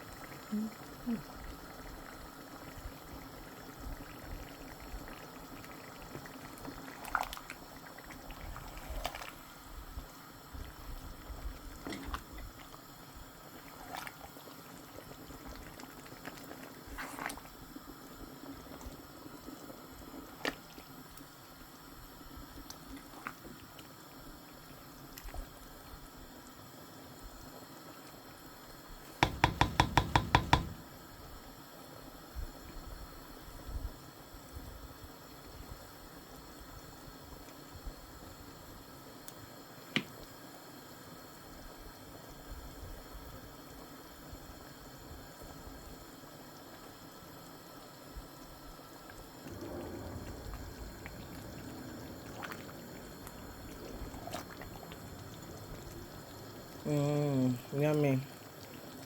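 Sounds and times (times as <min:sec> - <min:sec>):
soup bubbling in a pot: 0:00.0 - 0:59.0
loud knocks: 0:29.2 - 0:30.9.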